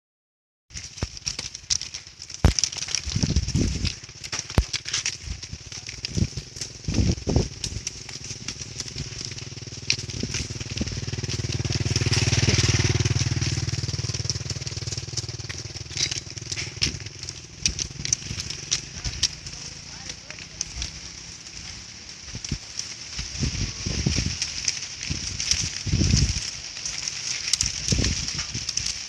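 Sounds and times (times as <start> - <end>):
leaves rustling in wind: 0.7 - 29.0
sharp crackling clicks: 0.7 - 29.0
low engine hum: 6.1 - 26.5.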